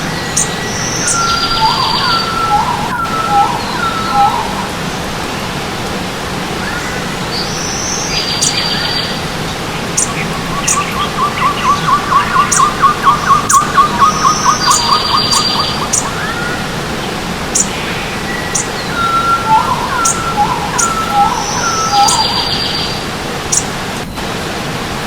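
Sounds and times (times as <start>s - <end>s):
buzzy bird phrases: 0.0s - 5.6s, 6.6s - 24.1s
birds chirping: 0.0s - 24.4s
running stream: 0.0s - 25.0s
bird whistling repeated notes: 0.1s - 4.8s, 10.0s - 16.8s, 17.5s - 23.7s.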